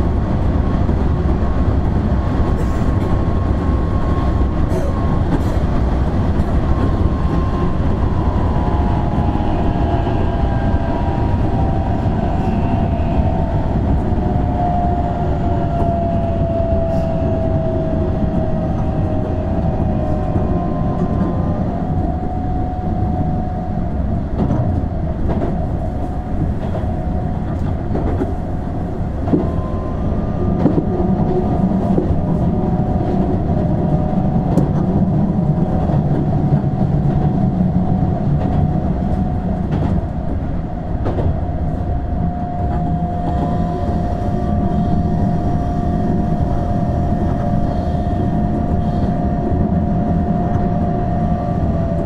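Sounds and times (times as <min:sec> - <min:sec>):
train wheels rumbling on rails: 0:00.0 - 0:52.0
steady high hum: 0:05.9 - 0:52.0
rail-joint clicks: 0:24.3 - 0:28.4, 0:29.1 - 0:44.2.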